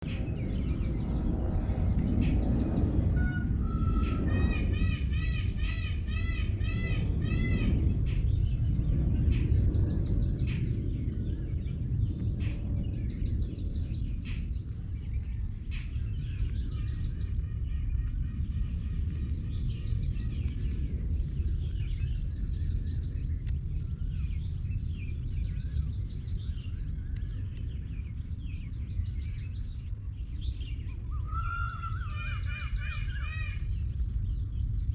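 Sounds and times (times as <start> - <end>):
steady low rumble: 0.0 - 34.9
ringing bird calls: 23.9 - 34.4.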